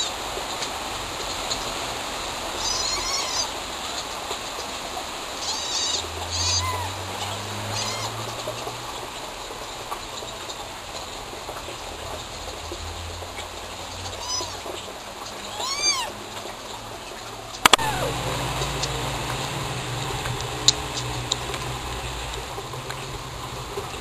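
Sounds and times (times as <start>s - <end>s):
small birds chirping: 5.4s - 6.9s
steady background hiss: 16.2s - 24.0s.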